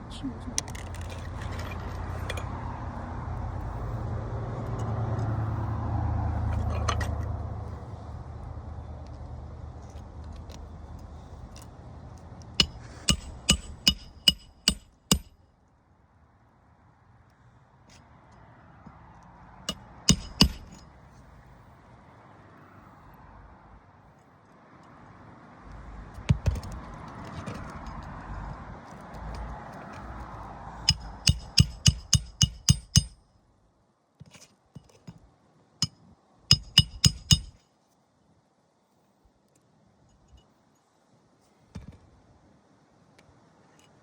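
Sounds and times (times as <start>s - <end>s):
vehicle engine rumbling past: 1.2s - 12.0s, 26.8s - 30.9s
hammer driving nails: 12.6s - 15.3s, 19.7s - 20.8s, 30.9s - 33.2s, 35.8s - 37.6s.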